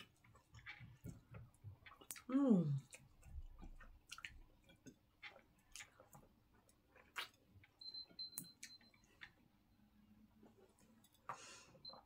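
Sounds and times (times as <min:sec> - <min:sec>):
mouth clicks and chewing: 0:00.0 - 0:09.4.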